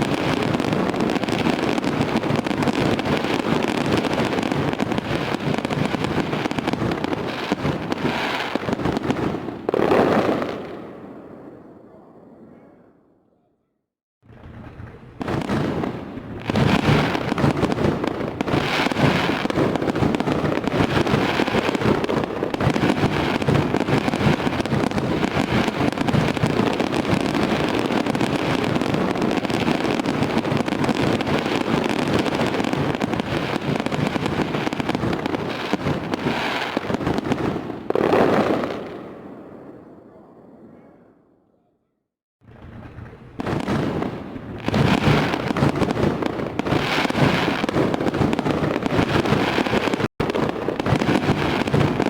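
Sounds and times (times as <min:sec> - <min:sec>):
fireworks bangs and crackles: 0:00.0 - 0:12.7, 0:14.2 - 0:40.8, 0:42.4 - 0:52.0.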